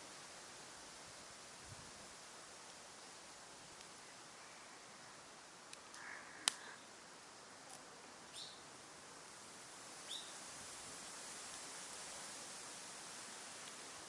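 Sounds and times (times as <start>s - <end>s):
campfire crackling: 0.0s - 14.0s
fire popping: 5.7s - 6.8s
bird calls: 8.3s - 8.7s, 10.1s - 10.4s.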